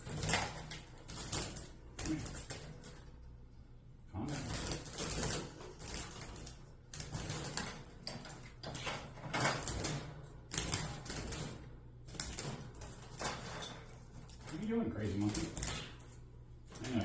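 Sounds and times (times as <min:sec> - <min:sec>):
wire cage rattling: 0:00.0 - 0:03.4, 0:04.2 - 0:17.0
parakeet fluttering in cage: 0:04.2 - 0:17.0.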